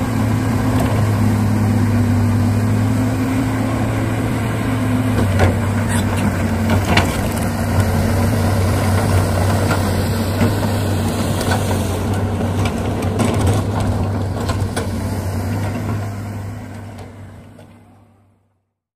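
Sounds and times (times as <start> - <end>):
engine drone idling: 0.0 - 18.4.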